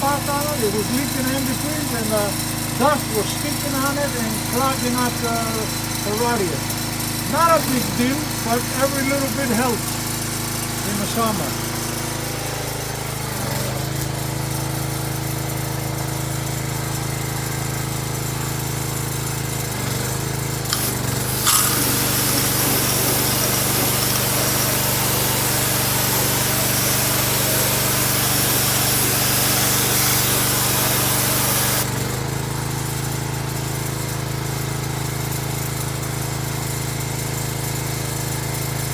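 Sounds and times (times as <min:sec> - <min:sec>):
loud steady hiss: 0:20.7 - 0:31.8.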